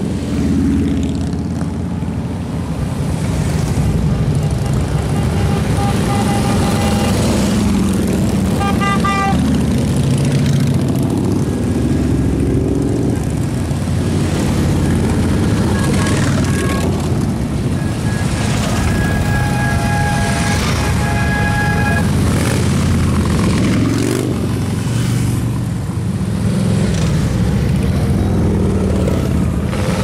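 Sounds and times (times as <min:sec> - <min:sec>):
motorcycle engines rumbling: 0:00.0 - 0:30.0
short horn tones: 0:04.4 - 0:07.5, 0:17.6 - 0:22.5.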